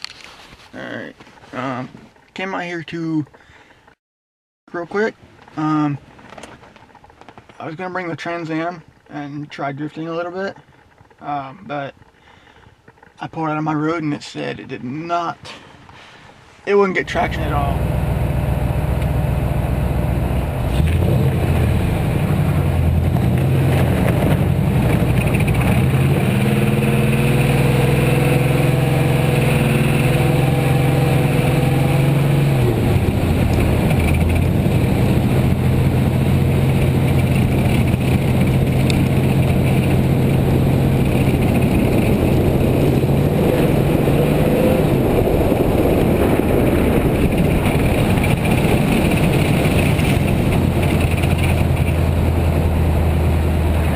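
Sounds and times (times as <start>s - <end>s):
road and wind noise: 0.0s - 4.0s, 11.9s - 53.9s
car engine revving: 17.0s - 53.9s.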